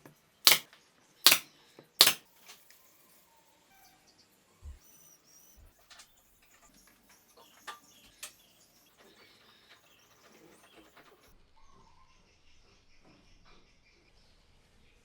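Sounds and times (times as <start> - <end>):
sharp clicks: 2.0 - 2.2.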